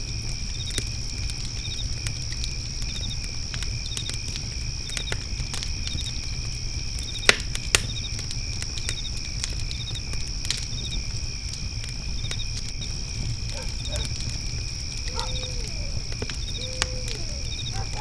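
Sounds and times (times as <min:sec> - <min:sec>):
crickets trilling: 0:00.0 - 0:18.0
fire crackling and popping: 0:00.0 - 0:18.0
insect chirping: 0:00.0 - 0:18.0.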